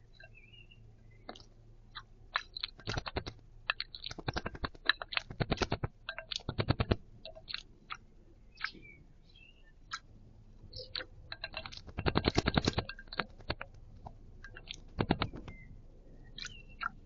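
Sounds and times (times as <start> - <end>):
faint bird chirps: 0.0 - 5.3, 7.2 - 10.1, 10.7 - 13.5, 14.4 - 17.0
bird splashing in water: 2.4 - 7.6, 11.0 - 13.8.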